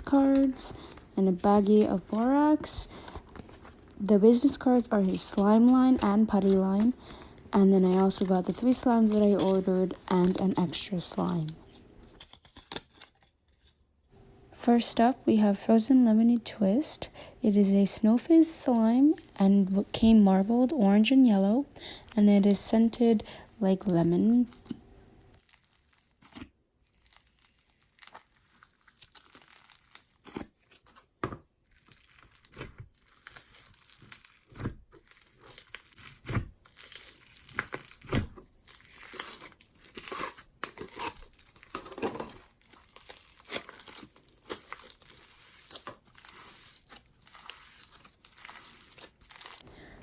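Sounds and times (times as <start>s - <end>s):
crunchy slime crackling: 0.0s - 11.6s, 22.8s - 30.9s, 31.6s - 49.6s.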